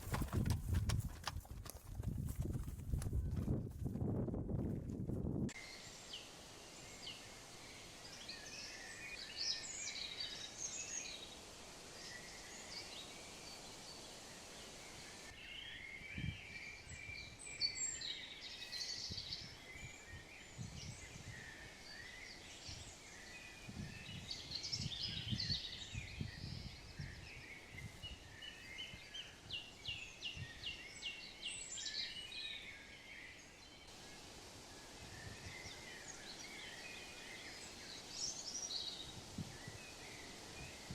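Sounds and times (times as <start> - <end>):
steady outdoor hiss: 5.5 - 40.9
small birds chirping: 5.6 - 40.9.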